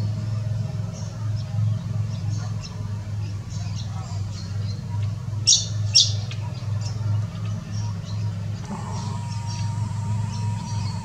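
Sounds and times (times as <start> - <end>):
faint bird chirping: 5.5 - 11.0
steady low hum: 7.6 - 11.0.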